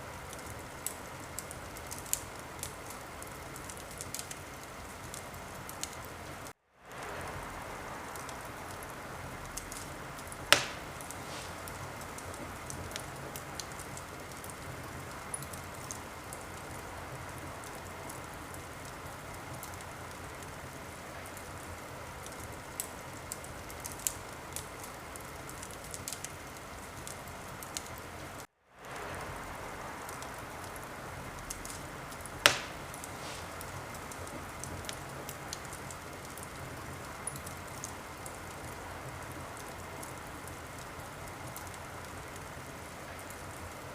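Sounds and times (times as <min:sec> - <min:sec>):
fire hissing: 0:00.0 - 0:43.9
wood fire crackling: 0:00.0 - 0:43.9
loud fire pops: 0:00.3 - 0:20.6, 0:28.8 - 0:42.5.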